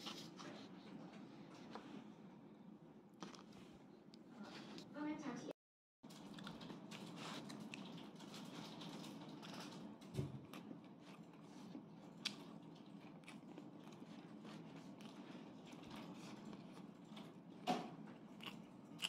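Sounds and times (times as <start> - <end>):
person chewing food: 3.1 - 4.3, 6.1 - 9.7, 10.4 - 19.0.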